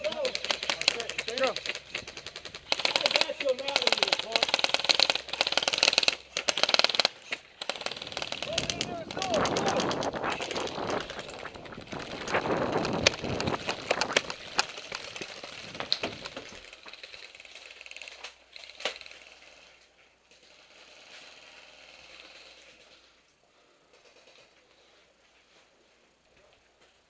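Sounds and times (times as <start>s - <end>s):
running footsteps: 0.0s - 17.1s
sharp clicks: 0.0s - 19.2s
gear rattling: 0.0s - 19.5s.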